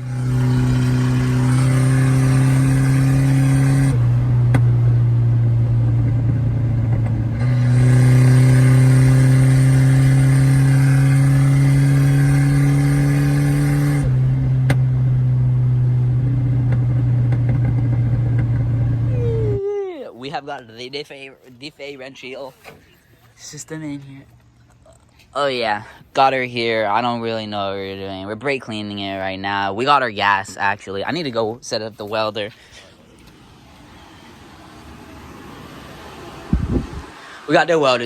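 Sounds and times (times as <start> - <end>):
vehicle engine droning: 0.0 - 19.8, 32.5 - 38.0.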